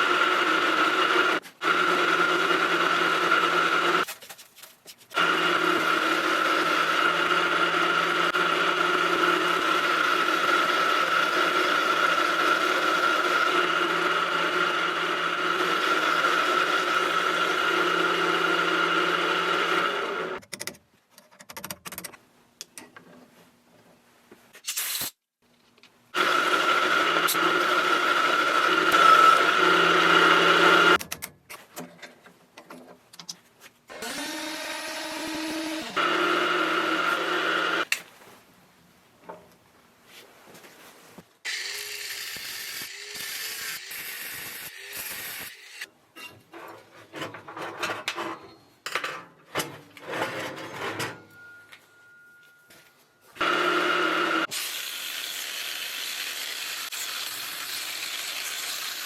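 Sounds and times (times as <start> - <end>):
welding arc buzzing: 41.5 - 45.9.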